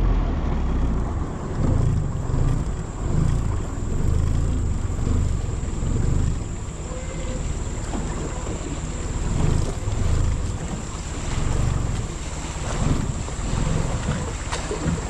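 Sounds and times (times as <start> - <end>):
boat motor rumbling: 0.0 - 15.0
wind and water hiss: 0.0 - 15.0.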